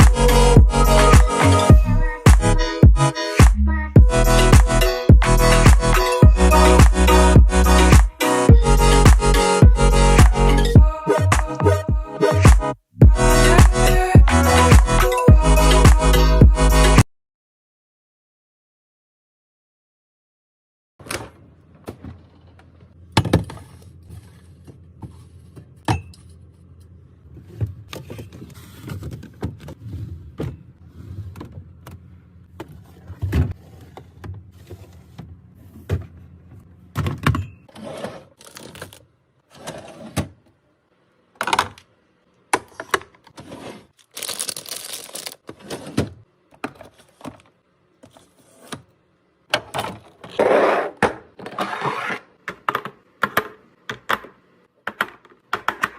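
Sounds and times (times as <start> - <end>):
packaging rustling: 43.9 - 45.5.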